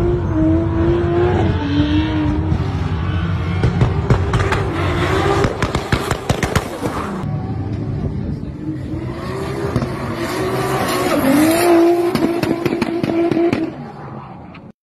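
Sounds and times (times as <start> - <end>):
car engine at high revs: 0.0 - 14.7.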